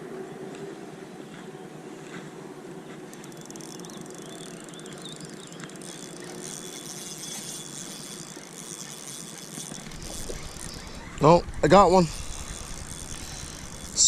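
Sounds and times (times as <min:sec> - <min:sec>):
faint bird chirps: 0:03.2 - 0:14.0
outdoor background hiss: 0:08.2 - 0:14.0.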